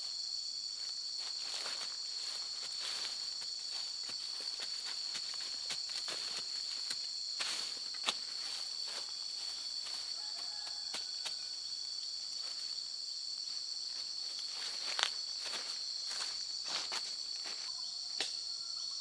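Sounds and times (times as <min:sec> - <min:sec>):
high-pitched insect chorus: 0:00.0 - 0:19.0
clicks and crackles in dry leaves: 0:01.2 - 0:11.6, 0:14.2 - 0:18.3.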